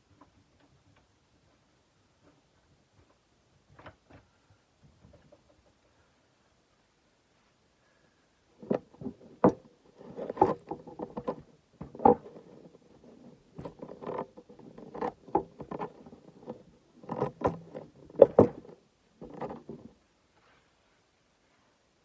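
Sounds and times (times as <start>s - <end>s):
blade knocks and clunks: 8.6s - 19.9s.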